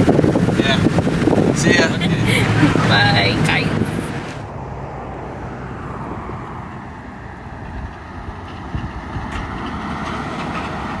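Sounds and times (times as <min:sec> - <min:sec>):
pickup engine and road rumble: 0:00.0 - 0:04.6.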